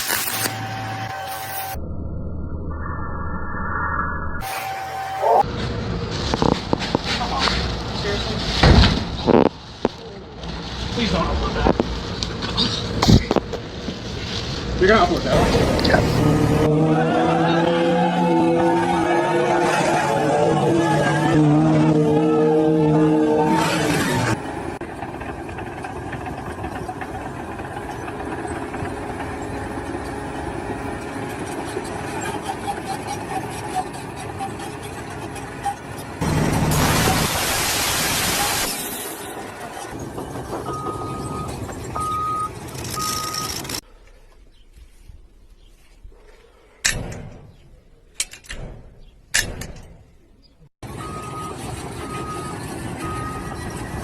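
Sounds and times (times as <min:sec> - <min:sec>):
reversing alarm beeping: 0:00.4 - 0:05.4, 0:40.3 - 0:43.8, 0:50.9 - 0:54.0
vehicle engine running: 0:05.2 - 0:37.5, 0:39.2 - 0:45.0
engine running steadily: 0:23.3 - 0:37.5
sharp bangs: 0:46.8 - 0:50.3.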